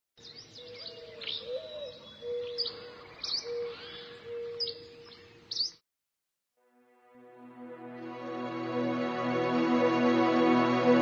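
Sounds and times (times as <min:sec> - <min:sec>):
birds chirping: 0:00.2 - 0:05.8
steady low bird call: 0:00.2 - 0:05.8.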